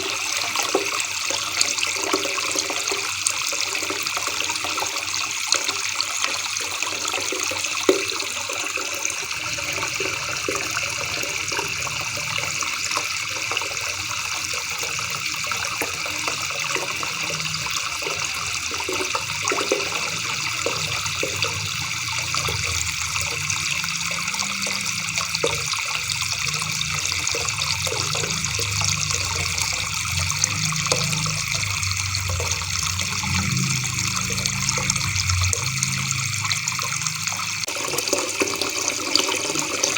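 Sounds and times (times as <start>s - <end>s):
low wavering rumble: 17.0s - 37.7s.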